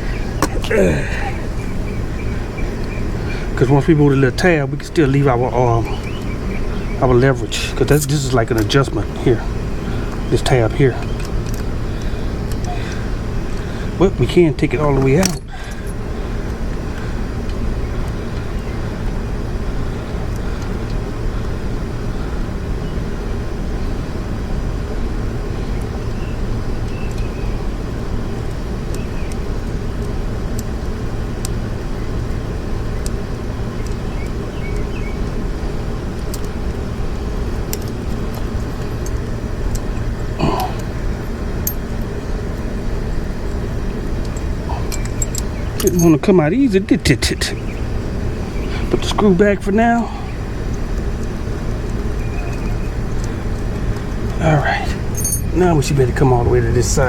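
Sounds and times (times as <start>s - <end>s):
low background rumble: 0.0s - 57.0s
hand tools clicking and clinking: 44.2s - 46.3s, 55.0s - 55.6s.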